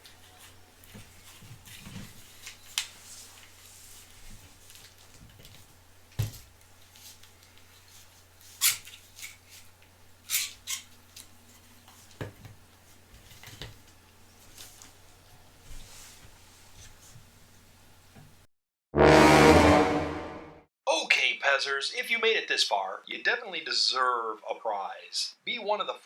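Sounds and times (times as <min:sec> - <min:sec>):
low hum: 0:19.0 - 0:20.6.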